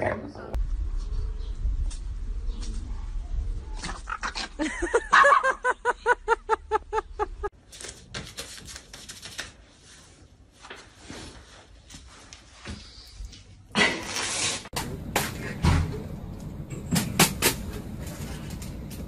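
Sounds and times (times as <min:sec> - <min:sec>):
scuffing and handling noises: 0:09.6 - 0:13.1.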